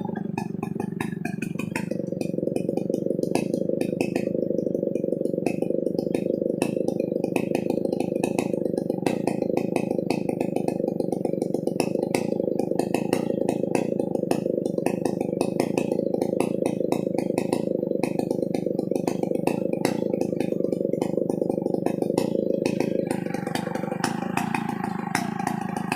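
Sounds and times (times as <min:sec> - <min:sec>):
sharp ticks: 0:00.0 - 0:25.9
chainsaw cutting under load: 0:11.8 - 0:25.9.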